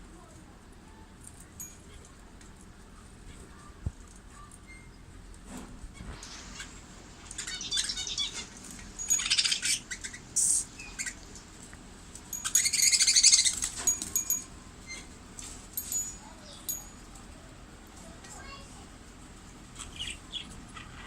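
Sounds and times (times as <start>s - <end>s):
budgerigars chattering and chirping: 6.5s - 11.2s, 12.4s - 13.7s, 19.8s - 21.0s.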